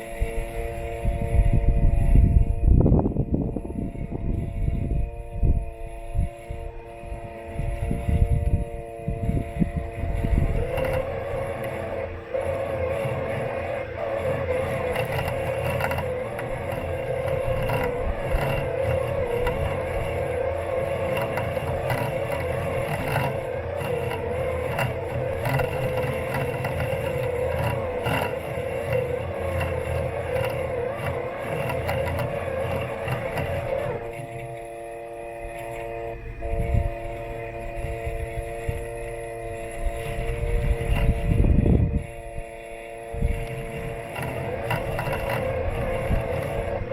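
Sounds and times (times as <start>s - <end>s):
robot mower motors whining: 0.0s - 46.9s
rough rumble: 0.0s - 46.9s
scattered clicks: 8.4s - 34.8s, 43.0s - 46.9s.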